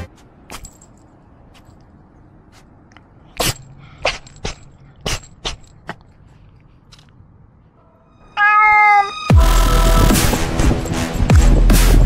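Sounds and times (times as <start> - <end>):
cat sneezing: 3.3 - 6.0.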